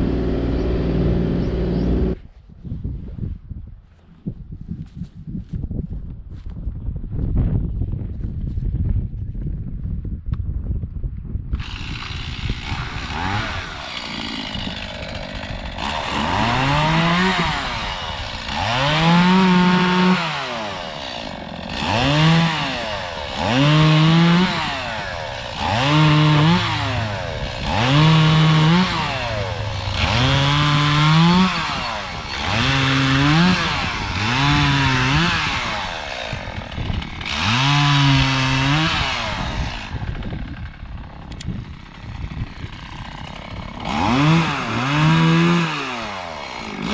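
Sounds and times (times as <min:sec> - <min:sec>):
chainsaw revving and cutting: 0:00.0 - 0:02.2, 0:11.6 - 0:46.9.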